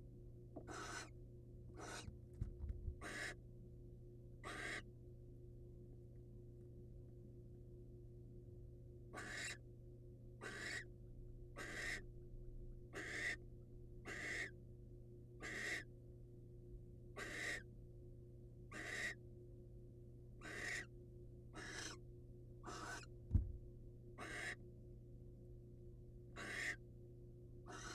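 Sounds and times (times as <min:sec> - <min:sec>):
low electrical hum: 0:00.0 - 0:27.9
barn owl hissing calls: 0:00.6 - 0:01.2, 0:01.8 - 0:02.1, 0:03.0 - 0:03.4, 0:04.4 - 0:04.8, 0:09.2 - 0:09.6, 0:10.4 - 0:10.9, 0:11.6 - 0:12.0, 0:13.0 - 0:13.4, 0:14.0 - 0:14.5, 0:15.4 - 0:15.9, 0:17.2 - 0:17.6, 0:18.7 - 0:19.2, 0:20.4 - 0:20.9, 0:21.6 - 0:22.0, 0:22.6 - 0:23.1, 0:24.2 - 0:24.6, 0:26.4 - 0:26.8, 0:27.7 - 0:27.9.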